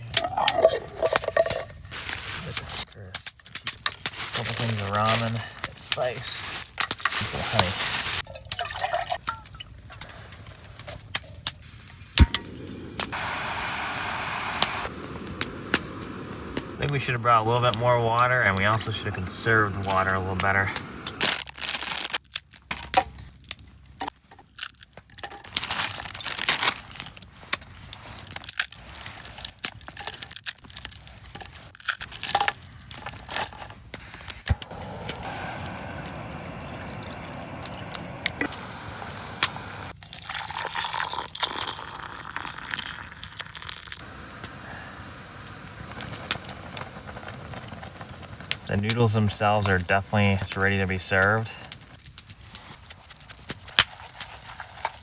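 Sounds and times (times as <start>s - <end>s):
food packaging crinkling and tearing: 0.0s - 8.2s, 21.2s - 34.6s, 51.7s - 55.0s
steady hiss: 11.7s - 21.4s, 34.0s - 39.9s, 44.0s - 51.8s.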